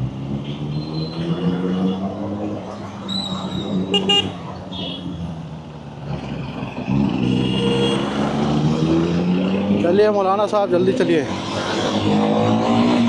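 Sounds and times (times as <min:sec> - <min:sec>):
vehicle horn toots: 0:03.9 - 0:05.1.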